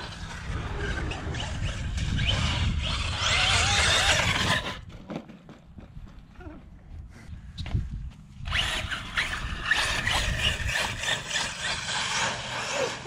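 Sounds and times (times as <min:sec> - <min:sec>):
rc truck motor running: 0:00.0 - 0:04.9, 0:08.4 - 0:13.0.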